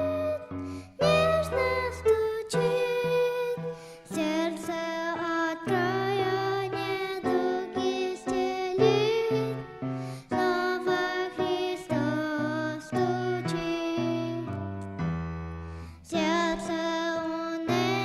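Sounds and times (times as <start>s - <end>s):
keyboard chords: 0.0s - 12.4s.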